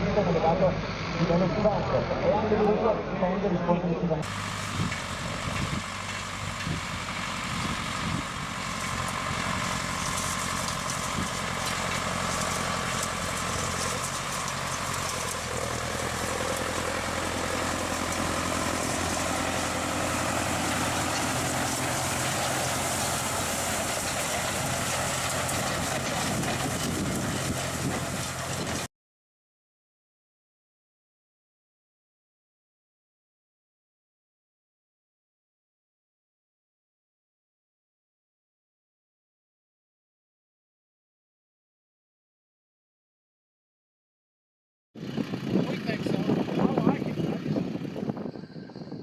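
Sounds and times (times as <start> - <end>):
farm machine engine running: 0.0 - 28.9, 45.0 - 49.0.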